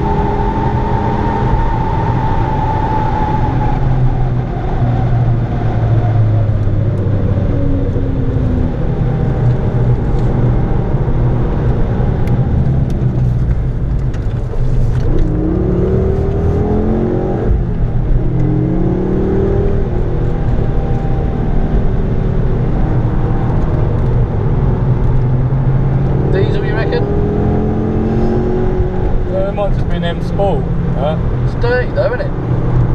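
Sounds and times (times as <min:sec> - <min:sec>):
car engine droning: 0:00.0 - 0:32.9.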